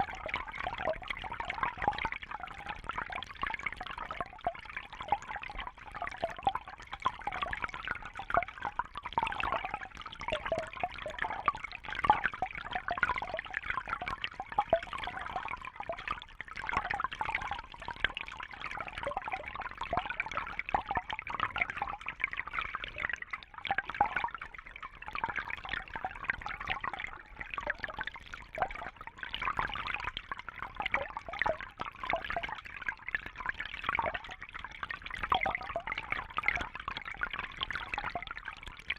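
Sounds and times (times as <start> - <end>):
water trickling and bubbling: 0.0 - 38.9.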